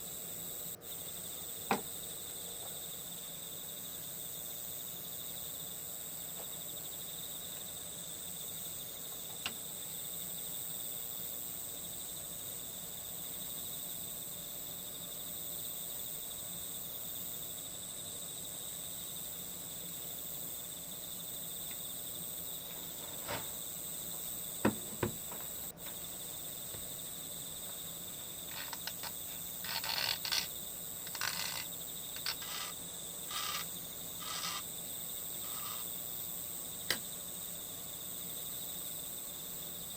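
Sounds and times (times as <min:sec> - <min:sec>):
crickets chirring: 0:00.0 - 0:39.9
short scratchy noises: 0:28.5 - 0:30.5, 0:31.1 - 0:34.6
sharp clicks: 0:31.1 - 0:32.7.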